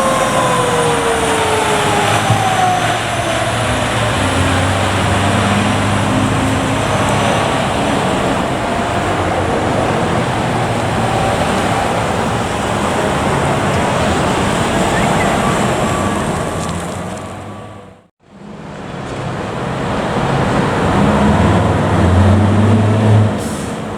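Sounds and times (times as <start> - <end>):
siren wail: 0.0 - 18.0
road noise: 0.0 - 23.9
truck engine hum: 0.0 - 23.9.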